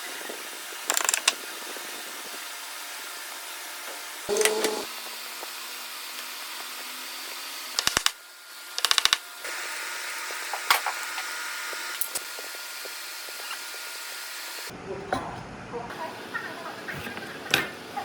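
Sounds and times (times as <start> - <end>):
rapid clicks: 0.8 - 1.4, 7.8 - 9.2.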